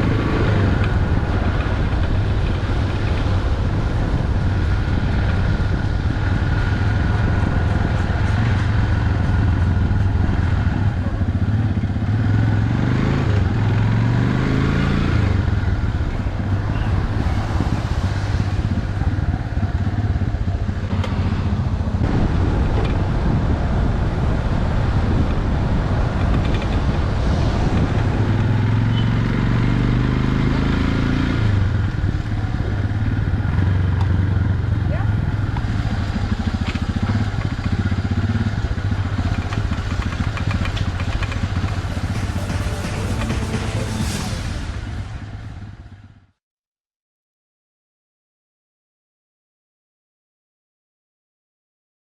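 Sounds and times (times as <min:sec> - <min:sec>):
vehicle engine running: 0:31.6 - 0:46.2.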